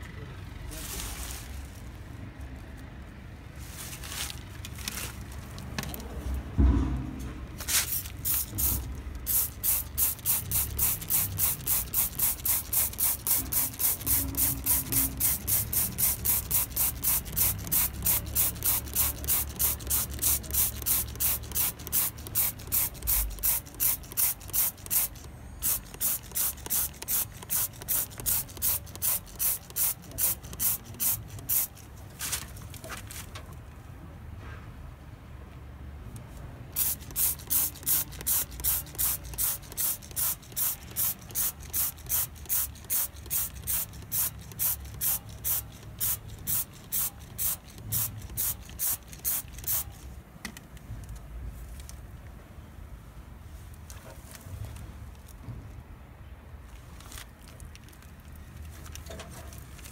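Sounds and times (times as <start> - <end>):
low thump: 6.6 - 7.2.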